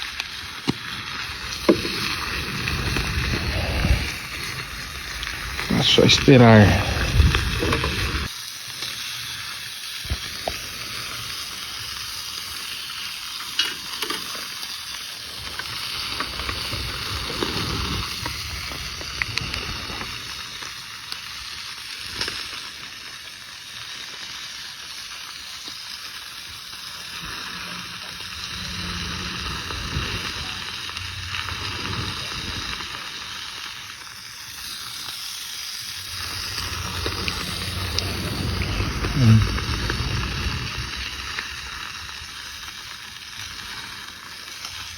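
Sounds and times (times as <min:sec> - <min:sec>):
food sizzling in a pan: 0:00.0 - 0:06.6, 0:07.3 - 0:44.9.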